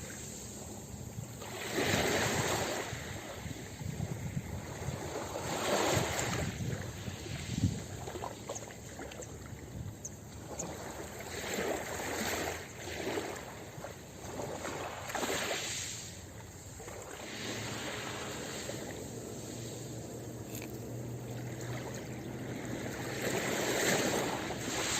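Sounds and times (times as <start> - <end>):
ocean waves washing onto beach: 0.0 - 24.9.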